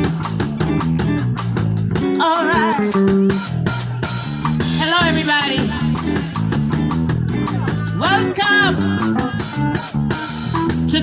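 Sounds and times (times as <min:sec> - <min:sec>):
drum kit beat: 0:00.0 - 0:11.0
live band playing: 0:00.0 - 0:11.0
person singing with vibrato: 0:02.2 - 0:03.4, 0:07.6 - 0:09.7.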